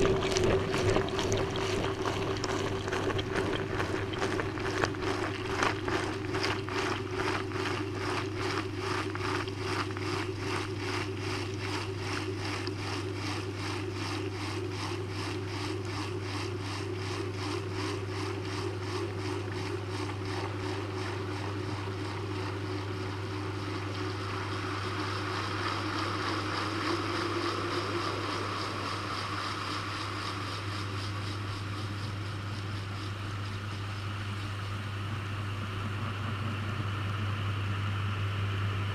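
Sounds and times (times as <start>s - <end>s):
water sloshing in washing machine: 0.0s - 37.9s
washing machine hum: 0.0s - 38.9s.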